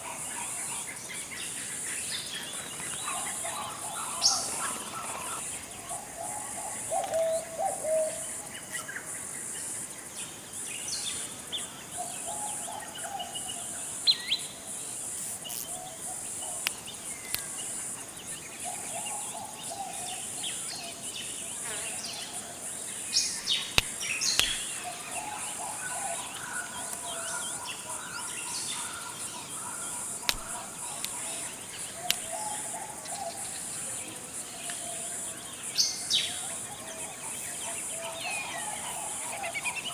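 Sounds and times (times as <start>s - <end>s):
high insect buzz: 13.6s - 37.4s
sharp ticks: 23.2s - 24.9s, 30.2s - 31.2s, 32.0s - 32.3s.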